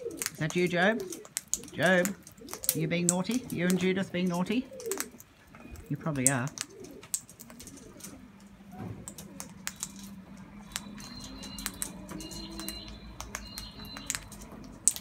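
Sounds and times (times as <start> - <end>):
birds pecking seed: 0.0 - 15.0
high whistled bird call: 10.6 - 14.3.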